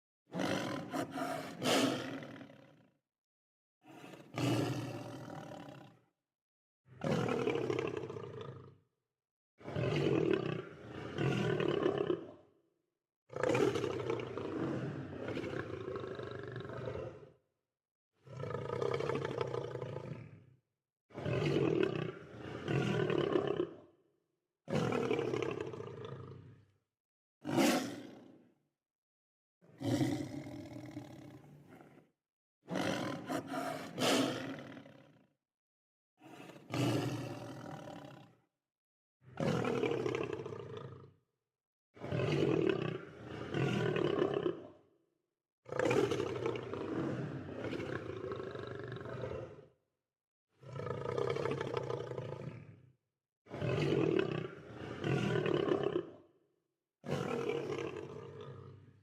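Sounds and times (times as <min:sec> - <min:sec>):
lion roaring: 0:00.3 - 0:02.8, 0:03.9 - 0:06.0, 0:09.6 - 0:12.4, 0:18.2 - 0:20.4, 0:24.8 - 0:26.7, 0:27.4 - 0:28.3, 0:29.7 - 0:32.0, 0:32.7 - 0:35.2, 0:36.2 - 0:38.3, 0:39.4 - 0:41.1, 0:42.1 - 0:44.8, 0:45.7 - 0:49.6, 0:50.6 - 0:52.8, 0:53.5 - 0:56.2, 0:57.0 - 0:59.0.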